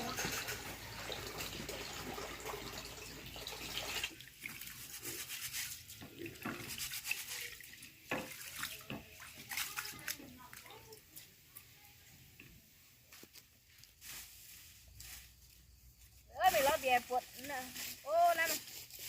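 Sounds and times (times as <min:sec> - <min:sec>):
water splashing and sloshing: 0:00.0 - 0:11.8.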